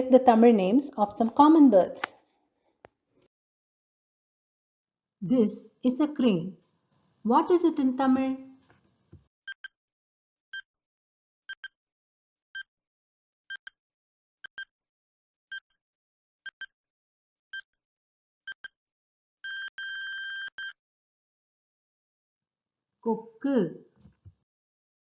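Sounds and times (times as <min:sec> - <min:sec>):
electronic timer ticking: 0:09.5 - 0:09.7, 0:11.5 - 0:11.7, 0:16.5 - 0:16.7.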